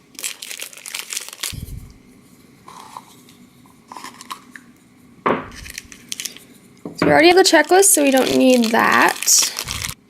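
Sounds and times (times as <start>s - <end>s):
plastic packaging tearing and crinkling: 0.1s - 1.9s, 3.9s - 4.5s, 5.5s - 6.5s, 7.4s - 10.0s.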